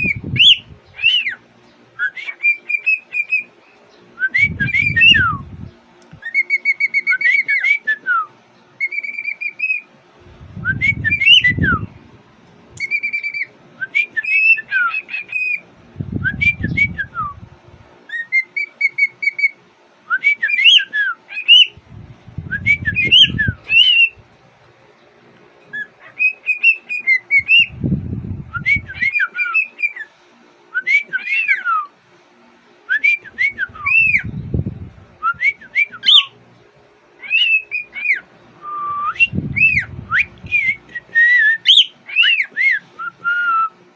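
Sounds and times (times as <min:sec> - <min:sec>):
cockatiel whistling: 0:00.0 - 0:01.4, 0:02.0 - 0:03.5, 0:04.2 - 0:05.4, 0:06.2 - 0:09.8, 0:10.6 - 0:11.9, 0:12.8 - 0:15.6, 0:18.1 - 0:21.8, 0:22.5 - 0:24.2, 0:25.7 - 0:27.7, 0:28.5 - 0:30.1, 0:30.8 - 0:31.9, 0:32.9 - 0:34.3, 0:35.2 - 0:36.4, 0:37.2 - 0:43.7
dull low rumble: 0:10.3 - 0:12.2, 0:15.9 - 0:17.8, 0:21.8 - 0:24.2, 0:27.5 - 0:29.0, 0:38.9 - 0:40.9.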